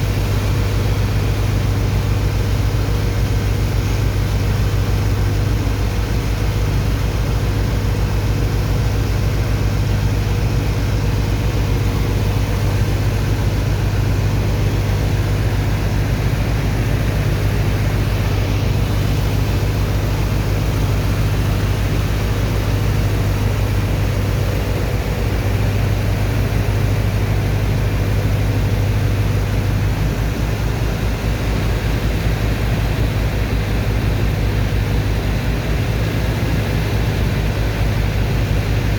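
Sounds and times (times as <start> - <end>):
constant hum: 0.0 - 38.9
engine and pump drone: 0.0 - 38.9.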